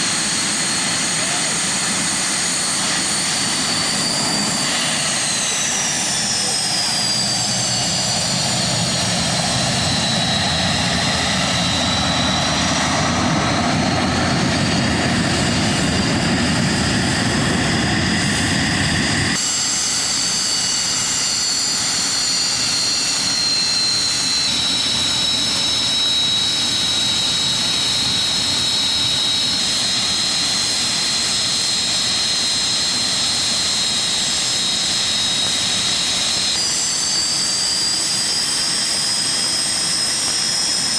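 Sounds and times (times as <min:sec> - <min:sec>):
jet engine whine: 0:00.0 - 0:40.9.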